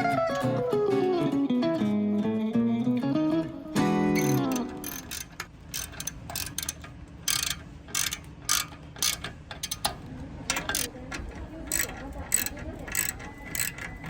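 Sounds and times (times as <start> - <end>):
ratchet wrench clicking: 4.2 - 14.0.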